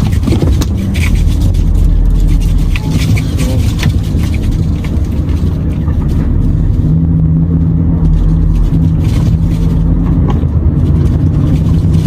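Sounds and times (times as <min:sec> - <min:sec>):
knocks from rough road: 0:00.0 - 0:07.2
truck diesel engine drone: 0:00.0 - 0:12.0.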